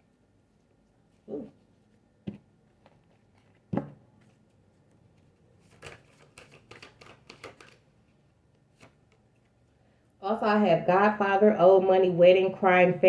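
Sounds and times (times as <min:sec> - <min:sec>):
cards clicking and rustling: 0:02.7 - 0:09.6.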